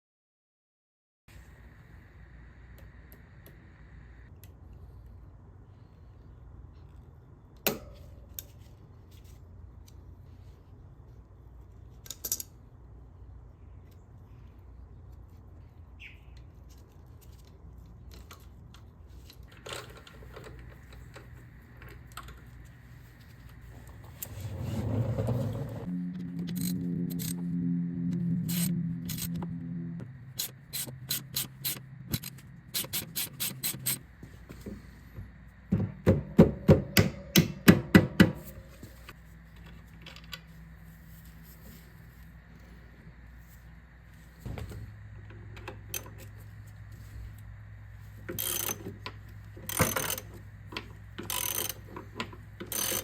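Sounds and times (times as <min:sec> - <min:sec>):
clicks of hand tools and metal: 0:12.0 - 0:12.6, 0:48.2 - 0:53.0
rough scraping: 0:23.6 - 0:27.6.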